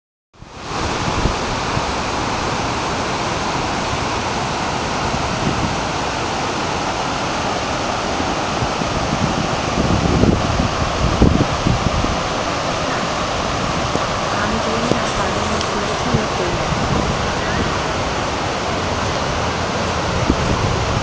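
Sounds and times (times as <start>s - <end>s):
floodwater rushing: 0.4s - 21.0s.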